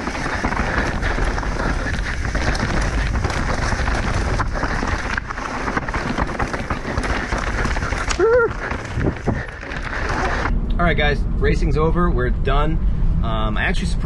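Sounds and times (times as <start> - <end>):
bike rattling: 0.0 - 10.5
bike tyre rumble on dirt: 0.0 - 10.6
person shouting: 8.2 - 8.5.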